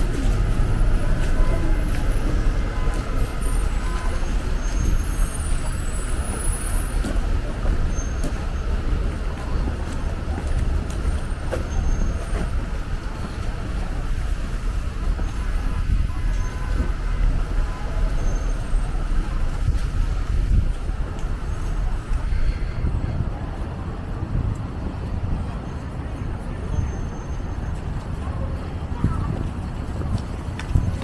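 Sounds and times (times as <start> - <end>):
low engine rumble of traffic: 0.0 - 31.0.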